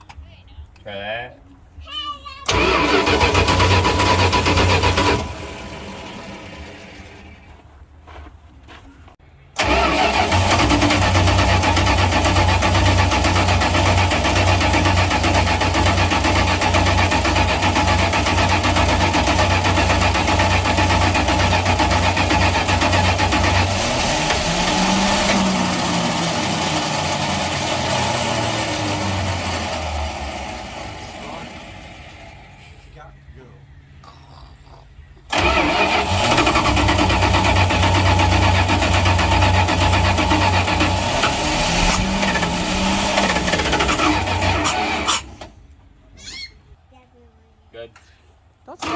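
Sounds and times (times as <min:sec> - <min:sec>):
truck engine starting and running: 0:02.4 - 0:34.0, 0:35.0 - 0:46.4, 0:48.6 - 0:48.9.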